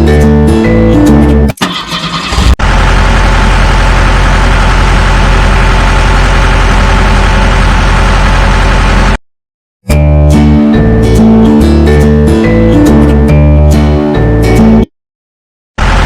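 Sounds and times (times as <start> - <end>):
vehicle engine idling: 2.6 - 9.2, 15.8 - 16.0.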